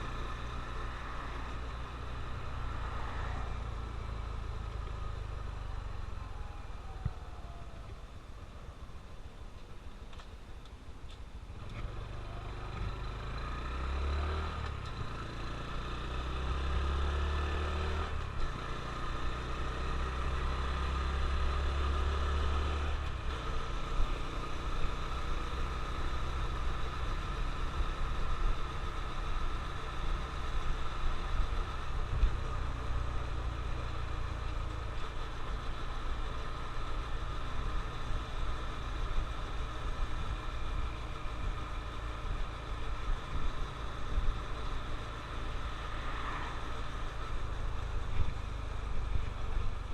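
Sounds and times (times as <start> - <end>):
road noise: 0.0 - 49.9
motorcycle engine accelerating: 11.6 - 49.9.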